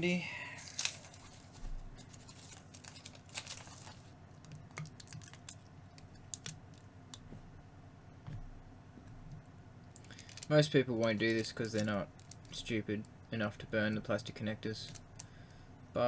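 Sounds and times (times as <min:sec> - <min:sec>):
aluminium tape crinkling: 0:00.6 - 0:07.3, 0:09.9 - 0:15.3.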